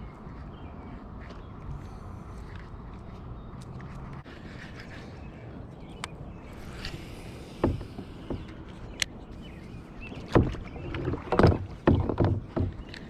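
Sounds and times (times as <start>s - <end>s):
water sloshing: 6.5s - 13.0s
knocks on kayak hull: 7.6s - 8.5s, 10.3s - 13.0s.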